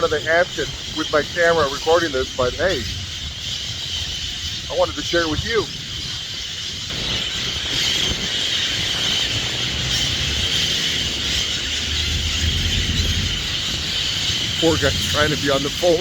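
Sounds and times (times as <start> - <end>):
flock of birds squealing: 0.0 - 16.0
low rumble: 8.8 - 16.0.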